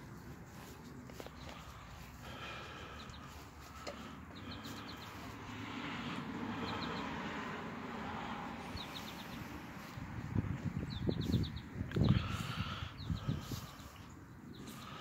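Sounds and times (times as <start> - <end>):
steady outdoor hiss: 0.0 - 15.0
bird chirping: 2.8 - 5.3, 6.5 - 7.2, 8.6 - 9.9, 10.8 - 15.0.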